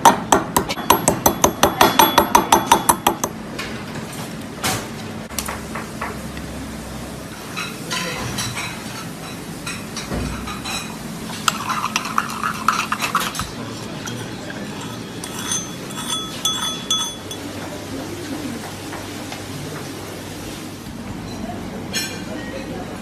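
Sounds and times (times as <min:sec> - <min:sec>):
steady background hum: 0:00.0 - 0:23.0
metal utensils clinking on cookware: 0:07.5 - 0:17.8.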